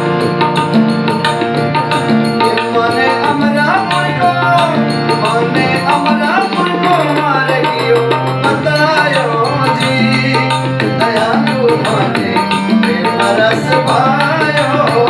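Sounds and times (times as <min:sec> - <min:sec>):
hand drum rhythm: 0:00.0 - 0:15.0
person singing devotional melody: 0:01.7 - 0:15.0.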